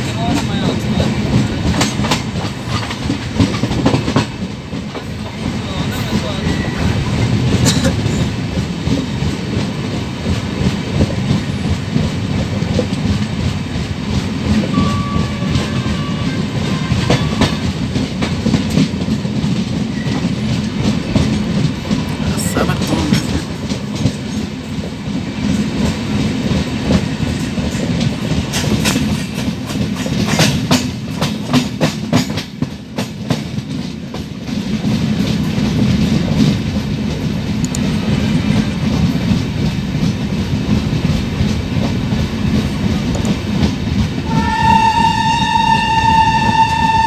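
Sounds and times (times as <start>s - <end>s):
wheels rumbling on rail: 0.0s - 47.0s
train horn: 14.7s - 17.8s, 44.2s - 47.0s
wheels clicking over rail joints: 23.2s - 47.0s.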